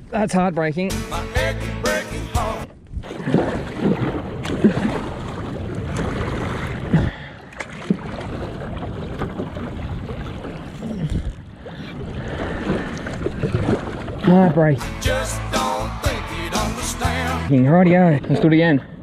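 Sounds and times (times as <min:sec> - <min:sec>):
water lapping against kayak hull: 0:02.7 - 0:15.0.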